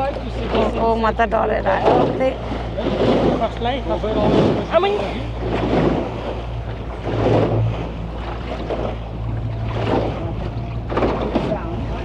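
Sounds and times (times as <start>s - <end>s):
boat engine running: 0.0s - 12.0s
waves washing around hull: 0.0s - 12.0s.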